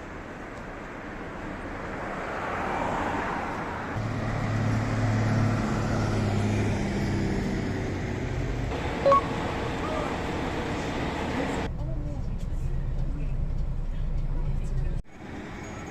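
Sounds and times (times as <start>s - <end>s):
vehicle rushing noise: 1.6s - 11.7s
low engine drone: 7.8s - 11.7s.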